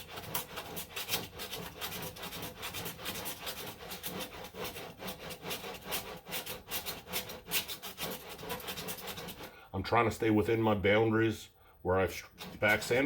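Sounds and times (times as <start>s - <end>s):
sandpaper scraping body filler: 0.0s - 9.5s, 12.2s - 13.0s.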